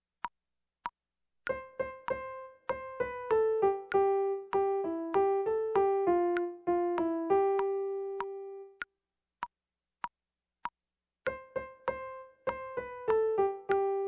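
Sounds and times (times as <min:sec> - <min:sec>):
piano keyboard melody: 0:01.5 - 0:08.8, 0:11.3 - 0:14.0.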